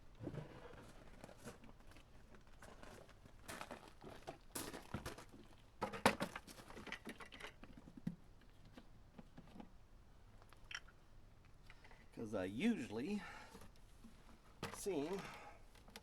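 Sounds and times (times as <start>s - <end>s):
oil containers knocking and rustling: 3.6s - 9.8s, 13.6s - 16.0s.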